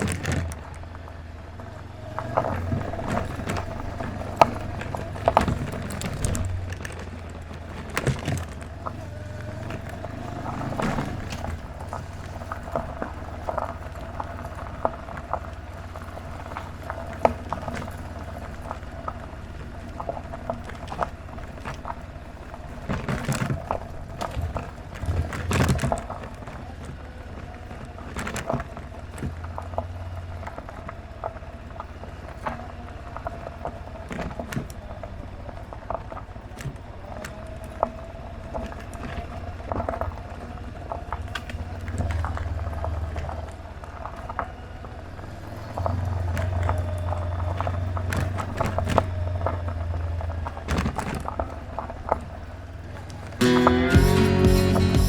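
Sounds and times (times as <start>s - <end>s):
motorcycle engine rumble: 0.0s - 55.0s.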